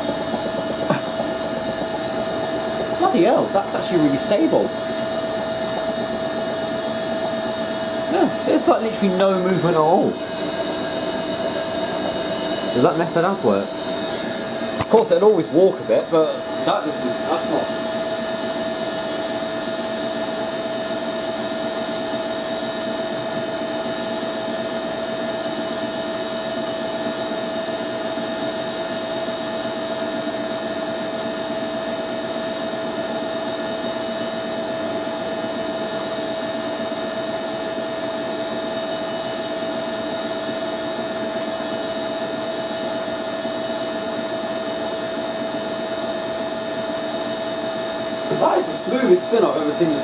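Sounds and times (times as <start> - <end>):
washing machine drum spinning: 0.0 - 15.6
steady whine: 0.0 - 23.7, 37.0 - 50.0.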